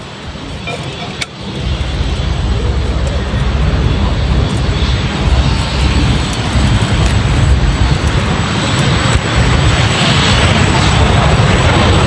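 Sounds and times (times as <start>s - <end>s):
jet engine roar: 0.0s - 12.0s.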